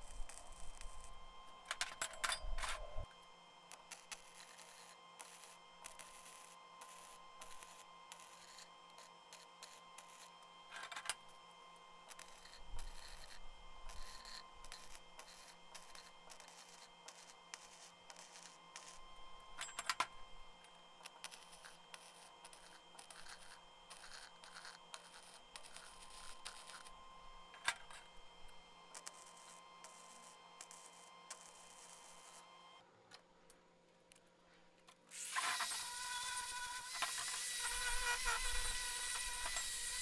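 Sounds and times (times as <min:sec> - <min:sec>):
welding arc crackling: 0:00.0 - 0:01.9, 0:03.7 - 0:10.3, 0:12.0 - 0:19.1, 0:20.3 - 0:27.0, 0:28.0 - 0:32.4, 0:35.1 - 0:40.0
faint hum: 0:00.0 - 0:37.0.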